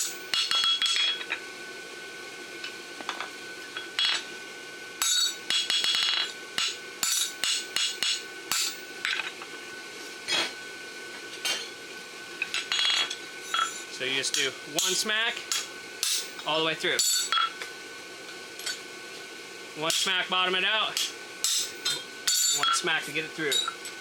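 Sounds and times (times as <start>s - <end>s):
hammer striking horseshoe on anvil: 0.0s - 1.3s, 5.0s - 9.2s, 12.6s - 16.4s, 17.0s - 17.5s, 21.0s - 22.8s, 23.5s - 23.8s.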